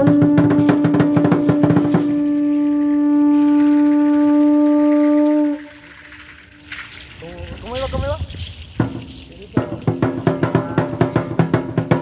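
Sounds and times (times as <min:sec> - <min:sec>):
conch shell trumpet held note: 0:00.0 - 0:05.8
fast percussion roll: 0:00.0 - 0:12.0.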